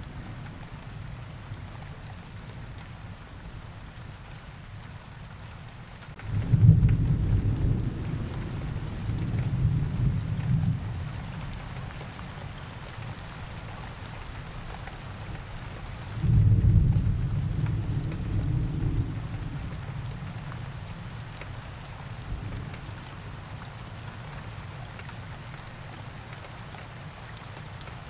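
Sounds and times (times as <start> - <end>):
steady rain: 0.0 - 28.0
low rolls of thunder: 6.2 - 11.8, 16.2 - 21.2, 22.2 - 23.1.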